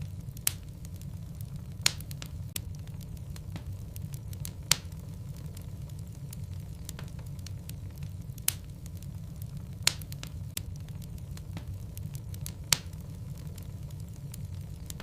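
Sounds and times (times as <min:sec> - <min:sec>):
fire flames rumbling: 0:00.0 - 0:15.0
wood crackling and popping: 0:00.0 - 0:15.0.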